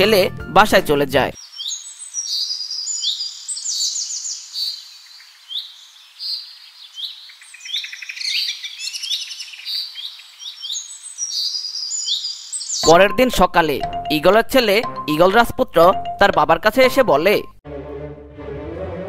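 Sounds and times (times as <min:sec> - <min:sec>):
birds chirping: 0:01.1 - 0:14.1.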